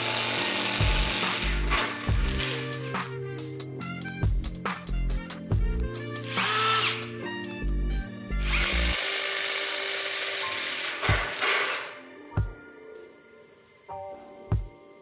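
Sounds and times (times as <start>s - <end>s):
impact driver whirring: 0.0s - 2.7s, 6.3s - 7.1s, 8.4s - 12.0s
background music with a beat: 0.6s - 8.6s, 10.9s - 15.0s.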